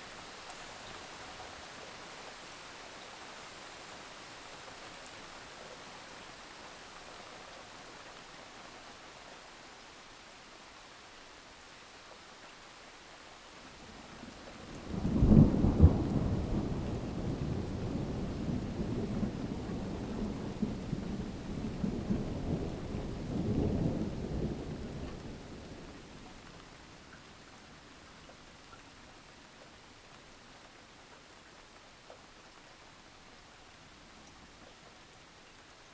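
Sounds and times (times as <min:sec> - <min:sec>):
thunder crack and rumble: 0:14.9 - 0:25.4.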